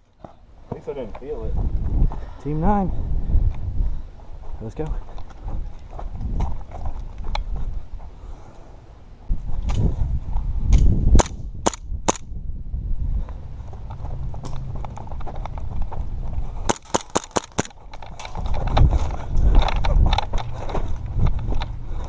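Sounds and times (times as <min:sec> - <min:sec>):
airsoft pistol shots: 0:10.7 - 0:12.2, 0:16.7 - 0:17.7.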